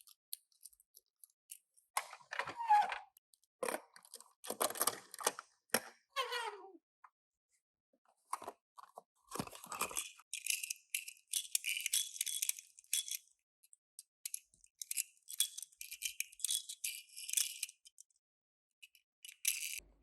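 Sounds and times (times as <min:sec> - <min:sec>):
toy cars clicking and clinking: 0:00.0 - 0:01.8, 0:09.3 - 0:18.2, 0:18.8 - 0:19.8.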